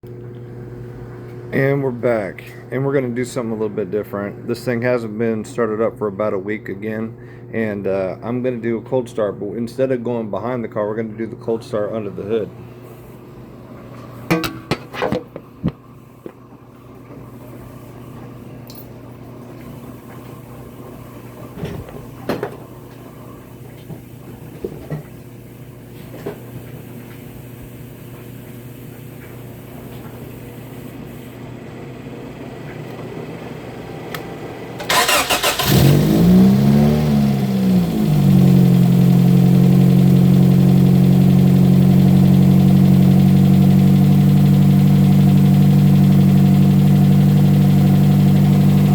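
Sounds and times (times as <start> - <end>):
car engine cranking and idling: 34.8 - 48.9.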